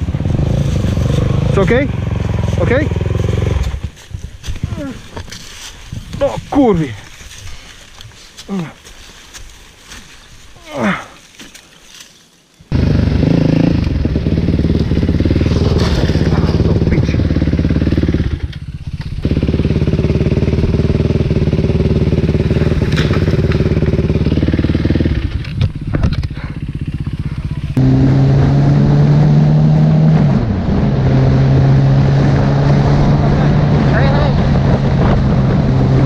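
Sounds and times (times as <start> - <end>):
motorcycle engine running: 0.0 - 5.3, 12.7 - 29.4.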